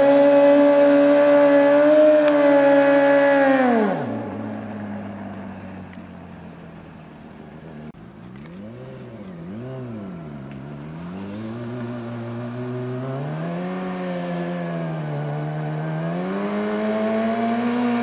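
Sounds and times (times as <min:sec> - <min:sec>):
engine throttle blips: 0:00.0 - 0:18.0
motorcycle engine idling: 0:04.1 - 0:12.2.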